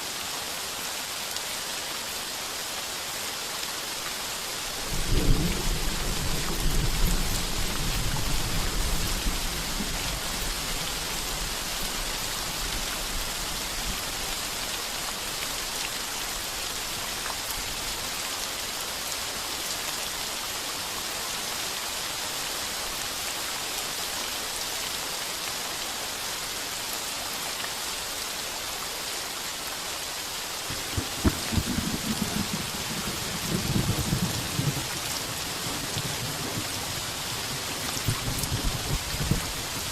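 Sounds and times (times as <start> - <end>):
heavy rain on a tin roof: 0.0 - 39.9
thunder rumbling: 30.7 - 34.9.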